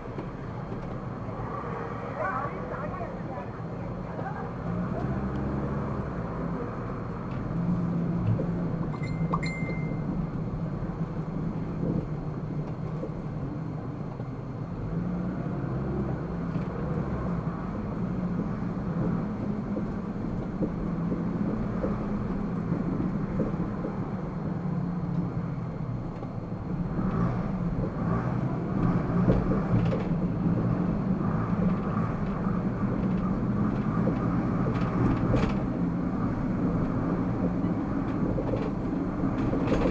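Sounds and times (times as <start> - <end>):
car engine and road rumble: 0.0 - 39.9
short beep: 9.0 - 10.1.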